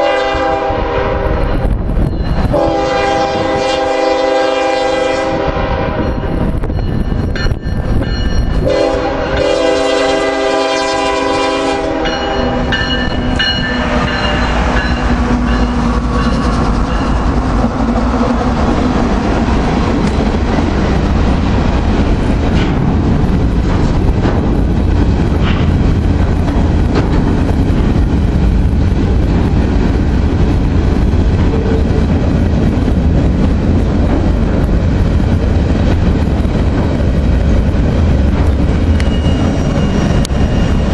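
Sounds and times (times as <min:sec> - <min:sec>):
locomotive horn blasts: 0:00.0 - 0:01.5, 0:02.5 - 0:06.1, 0:08.6 - 0:12.7, 0:13.6 - 0:14.6, 0:31.5 - 0:32.1
train cars rumbling: 0:00.0 - 0:40.9
wheels clacking on rail joints: 0:12.0 - 0:40.9.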